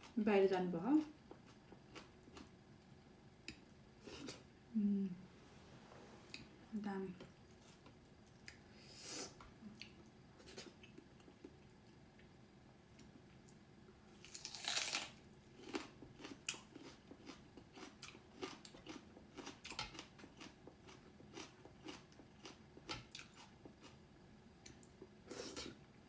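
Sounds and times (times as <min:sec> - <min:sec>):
crunchy bite: 0:14.2 - 0:15.9.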